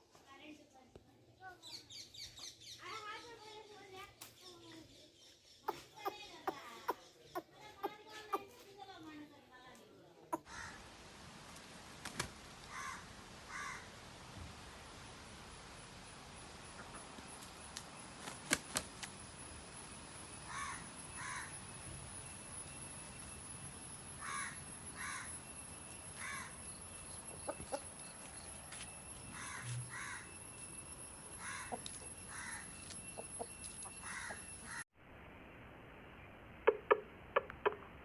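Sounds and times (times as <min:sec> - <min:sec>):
birds calling: 0:20.4 - 0:21.6, 0:24.2 - 0:30.4, 0:31.3 - 0:34.8.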